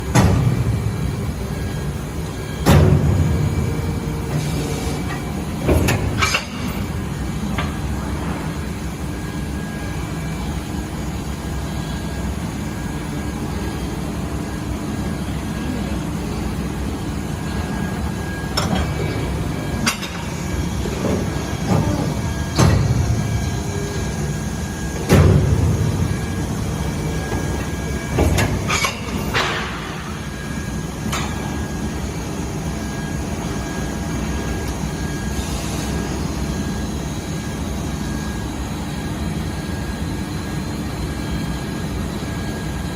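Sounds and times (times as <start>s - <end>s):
injection moulding machine drone: 0.0s - 42.9s
machine clunks: 0.1s - 0.9s, 2.6s - 3.5s, 4.4s - 6.9s, 18.5s - 23.6s, 24.9s - 26.4s, 27.1s - 30.2s.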